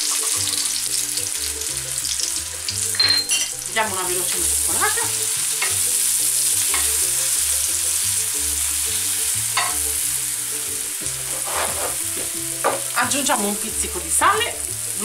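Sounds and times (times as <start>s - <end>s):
mushrooms sizzling in butter: 0.0s - 15.0s
spatula scraping a pan: 11.2s - 12.8s.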